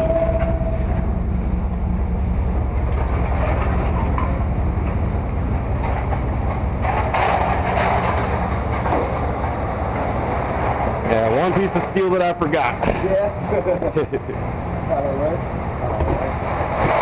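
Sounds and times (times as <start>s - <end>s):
engine running: 0.0s - 17.0s
rattling clatter: 5.7s - 12.9s, 15.9s - 17.0s.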